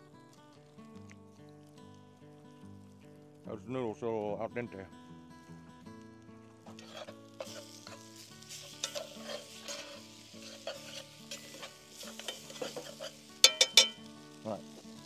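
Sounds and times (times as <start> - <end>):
food sizzling: 0.0 - 3.5, 5.0 - 15.0
spoon scraping in pot: 6.6 - 14.0.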